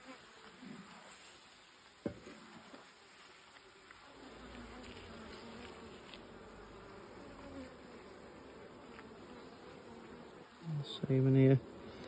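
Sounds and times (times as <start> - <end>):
honeybees buzzing: 0.0 - 12.0
single bee humming close: 4.0 - 12.0.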